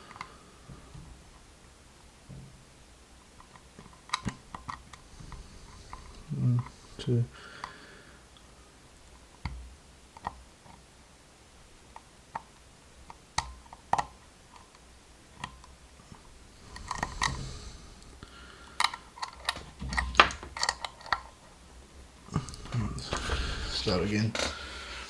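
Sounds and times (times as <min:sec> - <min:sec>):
lock pick clicking and scraping: 0:16.6 - 0:18.1, 0:18.7 - 0:21.4.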